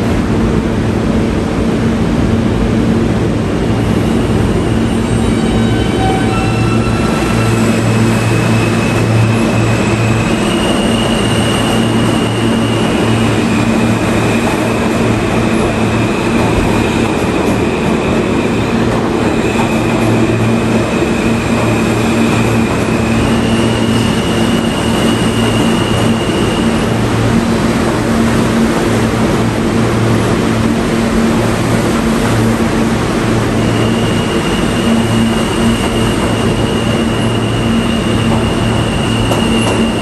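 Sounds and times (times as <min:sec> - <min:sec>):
subway train running: 0:00.0 - 0:40.0
high whine changing pitch: 0:03.6 - 0:27.3.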